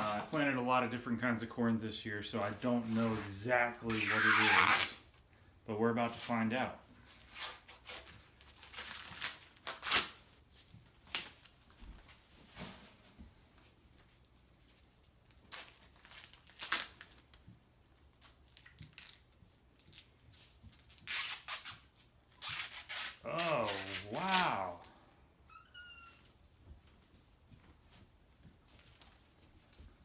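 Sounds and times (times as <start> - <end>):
corn husks ripping and rustling: 2.6 - 5.0, 7.1 - 10.3, 15.3 - 17.4, 18.2 - 24.9.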